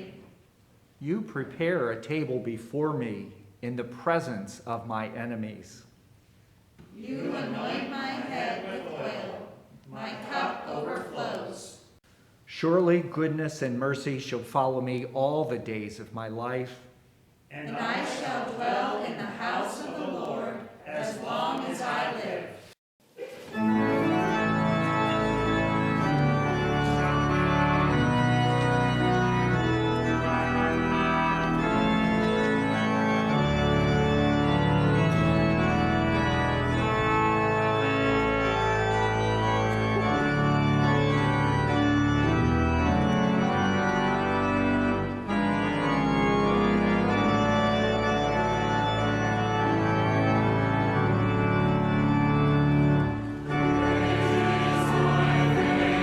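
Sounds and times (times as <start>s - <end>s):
organ playing sustained chords: 23.5s - 56.0s.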